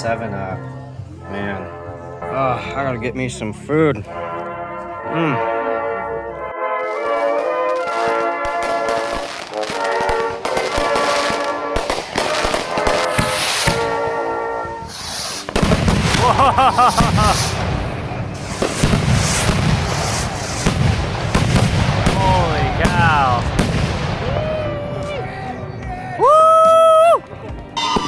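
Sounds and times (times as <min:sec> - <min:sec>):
music with held notes: 0:00.0 - 0:28.0
warbling firework whistle: 0:06.8 - 0:24.9, 0:27.8 - 0:28.0
fireworks bangs: 0:06.8 - 0:25.6, 0:27.8 - 0:28.0
fireworks crackling and popping: 0:06.8 - 0:25.6.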